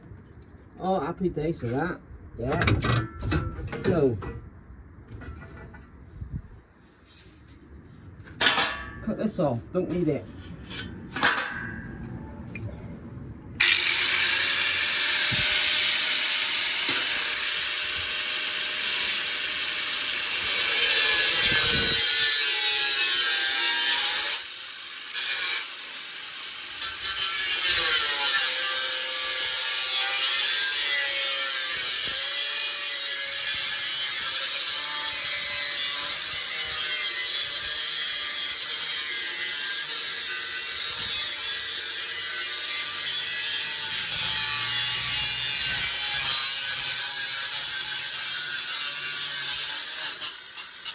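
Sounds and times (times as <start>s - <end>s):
power tool cutting sheet steel: 13.6s - 50.9s.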